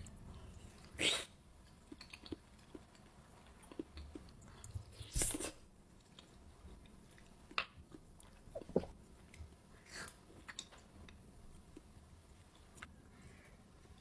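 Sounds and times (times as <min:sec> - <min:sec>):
chewing fruit: 0:01.6 - 0:09.5.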